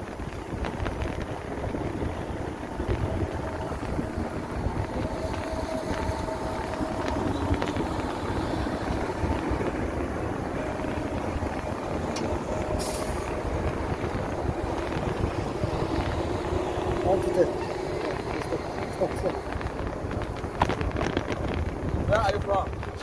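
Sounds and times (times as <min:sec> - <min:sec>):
road noise: 0:00.0 - 0:23.0
wind buffeting microphone: 0:00.0 - 0:23.0.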